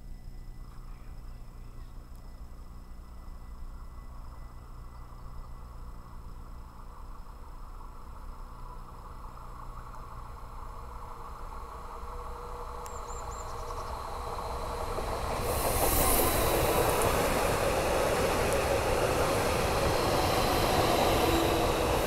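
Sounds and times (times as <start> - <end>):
electric train approaching: 2.9 - 22.0
high hiss rush: 12.5 - 22.0.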